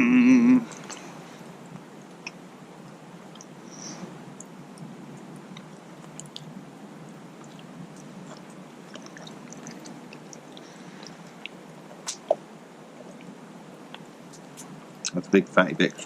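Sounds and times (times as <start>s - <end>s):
person chewing food: 5.5s - 6.5s, 7.4s - 12.4s.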